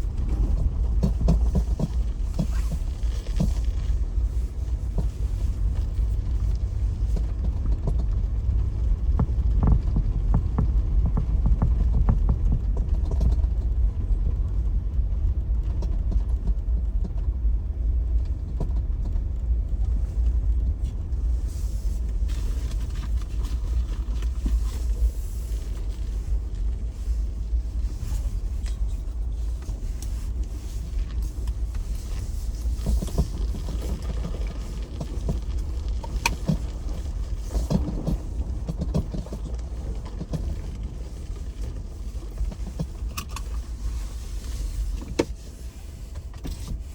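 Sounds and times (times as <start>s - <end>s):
engine and road rumble in cabin: 0.0s - 46.9s
tyres knocking and crackling on ice: 9.0s - 13.5s, 32.7s - 41.8s.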